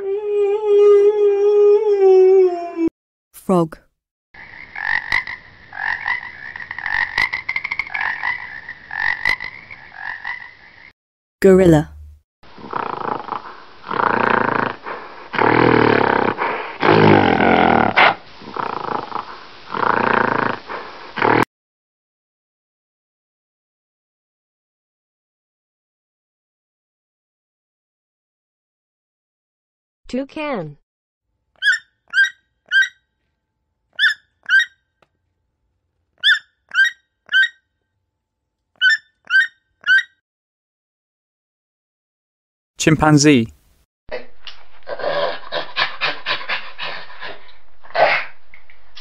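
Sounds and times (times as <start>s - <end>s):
gorilla calling loudly: 31.6s - 33.0s, 34.0s - 34.7s, 36.2s - 37.6s, 38.8s - 40.1s.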